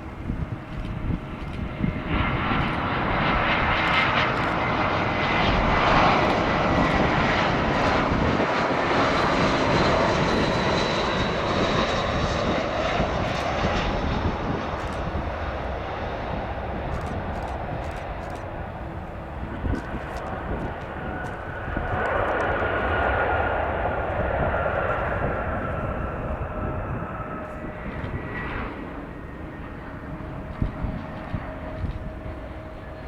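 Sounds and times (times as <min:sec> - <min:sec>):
jet engines rushing and whining: 0:00.0 - 0:33.0.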